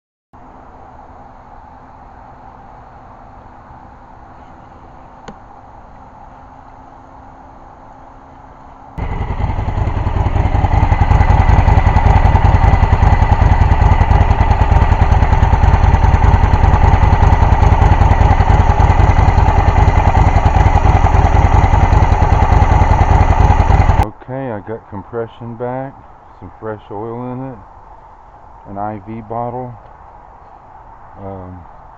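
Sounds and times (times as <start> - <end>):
motorcycle engine running: 9.0 - 24.1.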